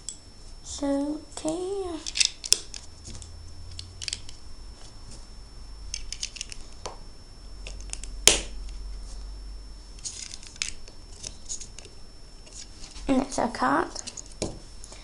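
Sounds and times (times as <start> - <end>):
sharp plastic snap: 7.8 - 8.5.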